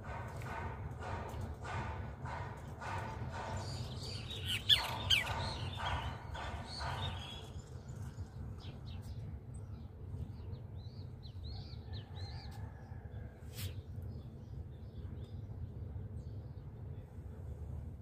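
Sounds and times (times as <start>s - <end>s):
harsh bird calls: 3.4s - 9.1s.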